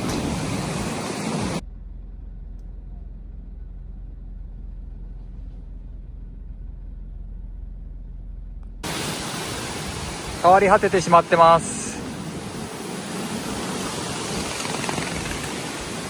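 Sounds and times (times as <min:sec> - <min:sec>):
rushing rain: 0:00.0 - 0:01.6, 0:08.8 - 0:16.0
faint low rumble: 0:01.6 - 0:08.8.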